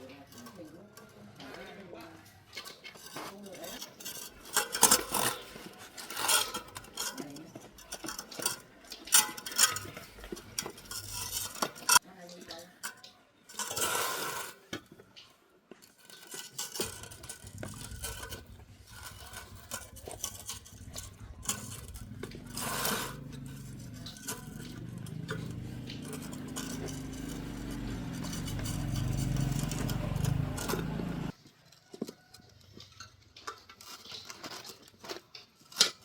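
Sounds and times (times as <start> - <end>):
metal tools clinking and scraping: 0.0 - 36.0
low steady hum: 17.0 - 31.3.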